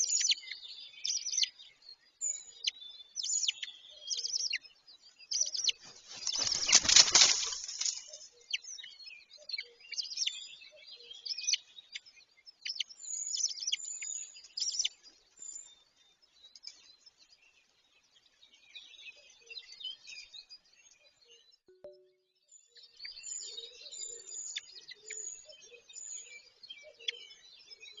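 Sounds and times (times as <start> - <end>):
birds chirping and twittering: 0.0 - 28.0
loud rustling: 5.8 - 8.1.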